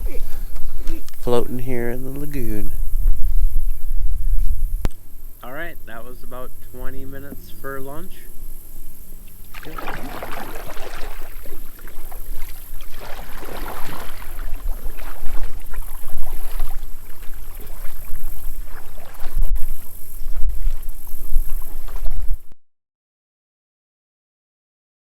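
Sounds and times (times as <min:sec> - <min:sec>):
wind on microphone: 0:00.0 - 0:22.6
paddle strokes splashing water: 0:09.2 - 0:22.5.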